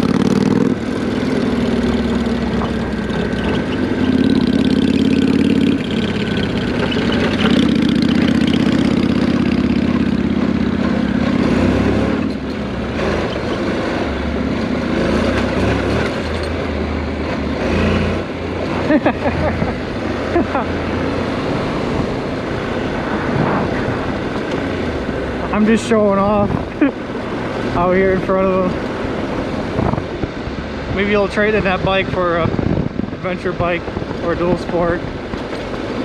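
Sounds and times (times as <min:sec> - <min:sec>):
motorcycle engine running: 0:00.0 - 0:36.0
wind rush: 0:19.2 - 0:36.0.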